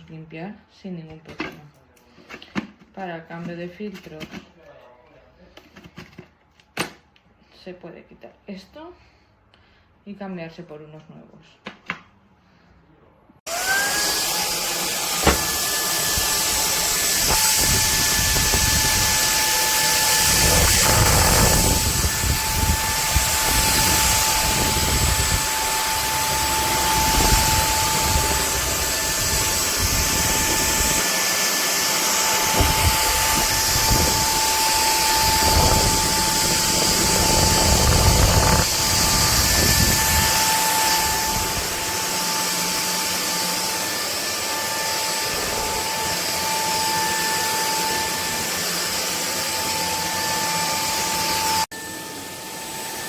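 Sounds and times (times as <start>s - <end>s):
stick vacuum motor whine: 13.5s - 53.0s
low rumble of vacuum head: 32.6s - 40.4s.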